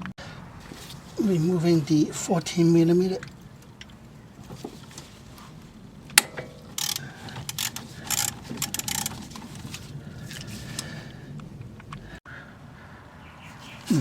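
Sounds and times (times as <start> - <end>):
ratchet wrench clicking: 6.2 - 9.2.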